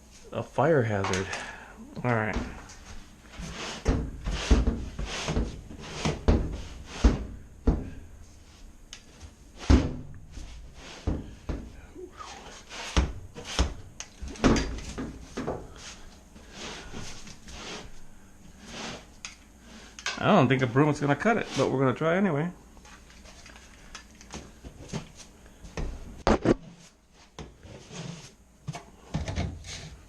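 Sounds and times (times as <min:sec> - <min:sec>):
objects knocking and clattering: 0:13.0 - 0:15.7.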